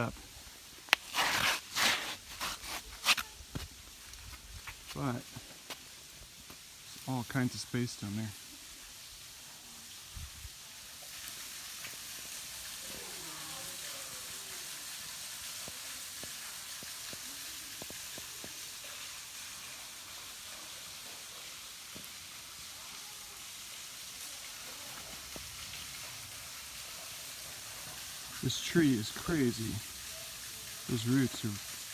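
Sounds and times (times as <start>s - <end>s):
waterfall splashing: 11.4s - 31.9s.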